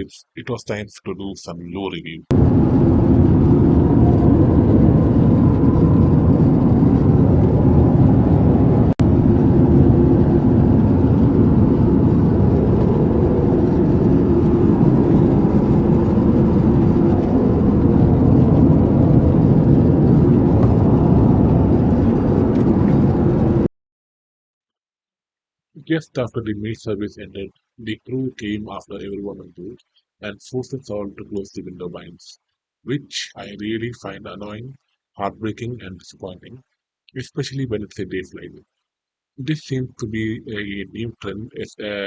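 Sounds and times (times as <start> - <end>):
airplane cabin engine drone: 2.3 - 23.7.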